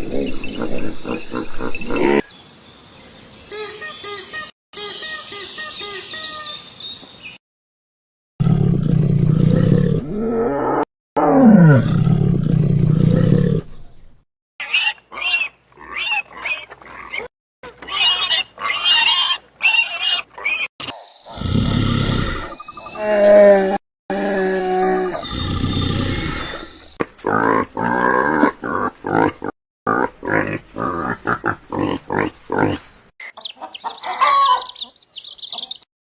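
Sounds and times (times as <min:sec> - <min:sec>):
high chirping animal calls: 0:00.0 - 0:02.2, 0:33.2 - 0:35.9.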